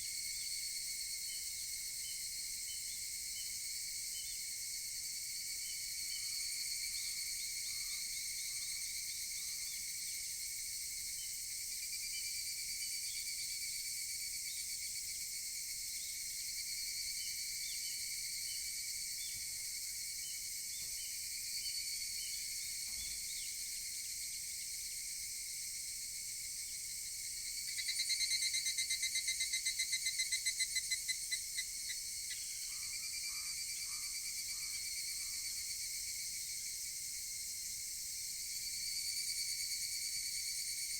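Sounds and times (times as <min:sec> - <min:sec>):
close cicada pulsed call: 0:00.0 - 0:40.9
high insect chorus: 0:00.0 - 0:40.9
cicadas calling: 0:26.6 - 0:36.0.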